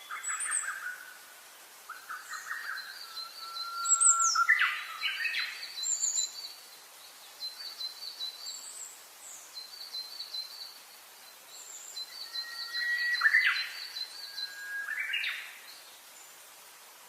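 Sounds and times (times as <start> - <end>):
rising whistled bird notes: 1.9 - 6.2, 12.0 - 15.6.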